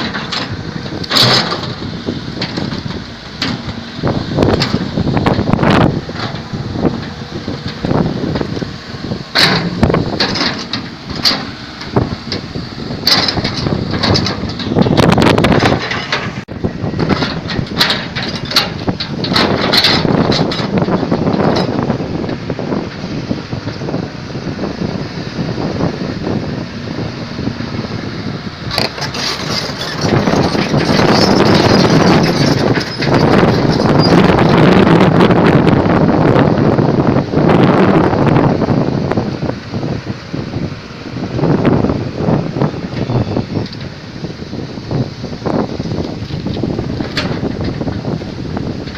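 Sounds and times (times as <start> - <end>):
knocks and scraping: 0.0 - 8.7, 9.3 - 23.9, 28.6 - 35.1, 45.0 - 48.9
excavator engine running: 0.0 - 48.9.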